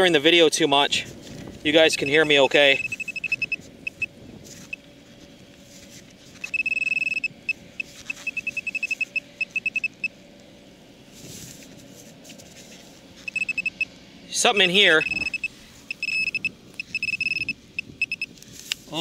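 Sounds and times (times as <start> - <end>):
faint steady hum: 0.0 - 19.0
high-pitched electronic beeps: 2.7 - 4.8, 6.5 - 10.1, 13.3 - 13.9, 15.0 - 18.3
soft scrapes: 11.1 - 13.3.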